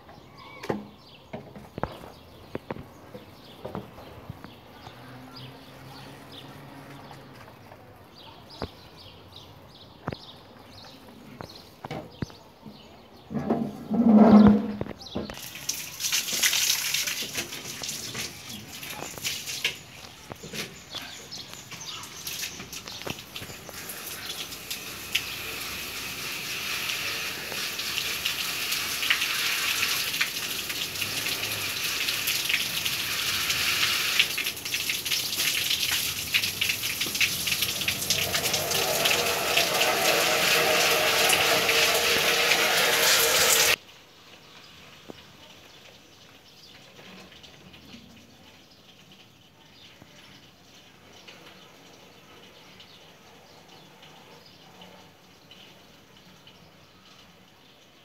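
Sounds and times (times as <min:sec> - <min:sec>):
water jet spraying: 0:15.4 - 0:43.8.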